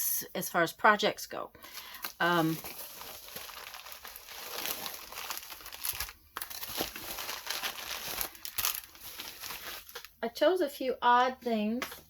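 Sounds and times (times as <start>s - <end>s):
packaging crinkling and rustling: 1.6s - 10.2s.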